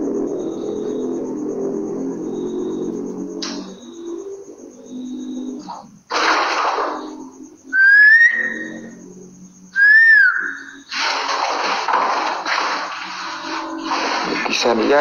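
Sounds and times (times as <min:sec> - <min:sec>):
whistled notes: 0:07.7 - 0:09.0, 0:09.7 - 0:10.9
loud rustling hiss: 0:10.8 - 0:15.0.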